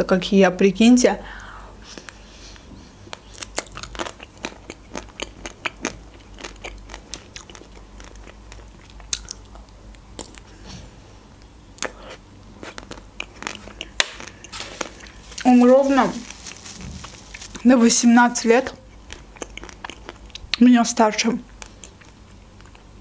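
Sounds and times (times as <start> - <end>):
chewing and crunching: 2.0 - 10.6, 11.8 - 18.0, 18.6 - 20.6, 21.5 - 23.0.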